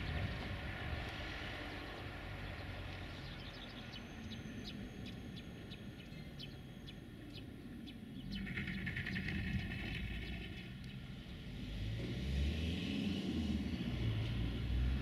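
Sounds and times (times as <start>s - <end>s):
low outdoor rumble: 0.0s - 11.9s
bird chirping: 2.5s - 11.0s.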